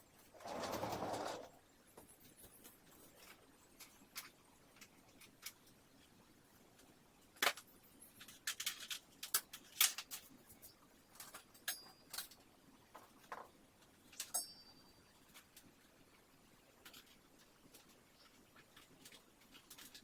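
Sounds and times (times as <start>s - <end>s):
high metallic ring: 14.3s - 15.0s.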